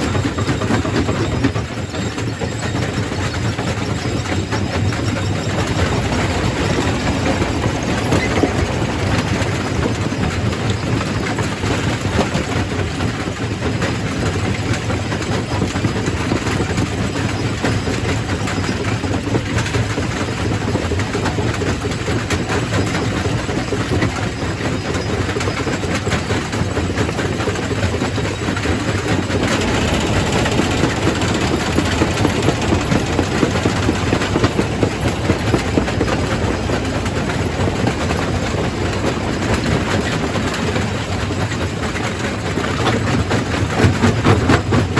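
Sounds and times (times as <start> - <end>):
rock crusher machine drone: 0.0 - 12.7, 23.0 - 44.9.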